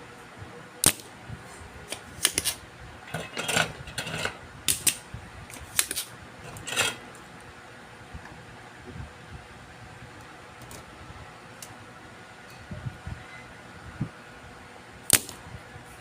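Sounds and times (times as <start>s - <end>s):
fan-like hum: 0.0s - 16.0s
small tools clicking on circuit board: 4.7s - 5.0s.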